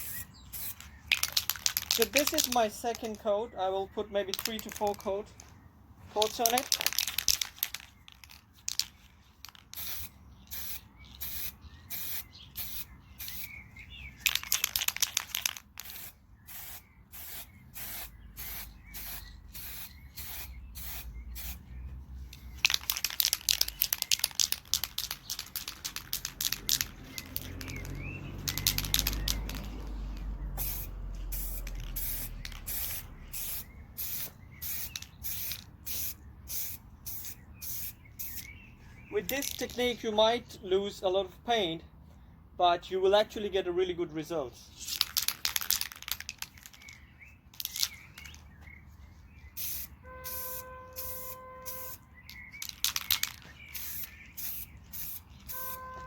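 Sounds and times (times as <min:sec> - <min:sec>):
spray can hissing: 0:00.0 - 0:02.8, 0:09.8 - 0:13.5, 0:14.3 - 0:21.6, 0:22.6 - 0:38.5, 0:49.6 - 0:52.0, 0:52.6 - 0:55.9
spray can rattle clicks: 0:00.6 - 0:03.2, 0:04.3 - 0:05.1, 0:06.2 - 0:13.4, 0:14.2 - 0:16.7, 0:22.3 - 0:38.5, 0:39.3 - 0:39.9, 0:44.8 - 0:48.4, 0:49.6 - 0:55.8.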